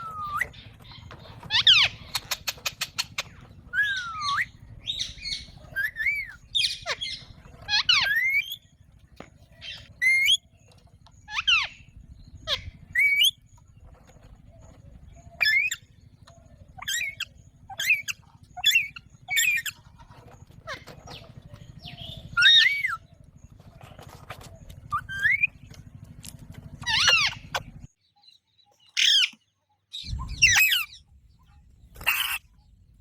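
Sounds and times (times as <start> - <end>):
parakeet squawking and whistling: 0.0 - 8.6, 9.6 - 10.4, 11.2 - 13.4, 15.3 - 15.8, 16.7 - 23.0, 24.8 - 25.7, 26.8 - 27.9, 30.0 - 31.0, 32.0 - 32.5.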